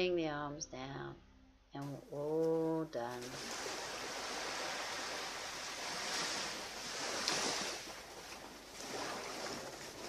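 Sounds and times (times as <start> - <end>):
surf washing onto beach: 3.2 - 10.0.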